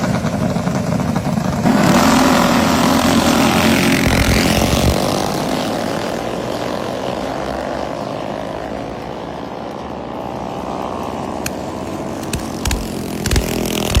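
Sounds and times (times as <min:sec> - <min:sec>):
minibike engine running hard: 0:00.0 - 0:14.0
sharp clicks: 0:11.4 - 0:14.0.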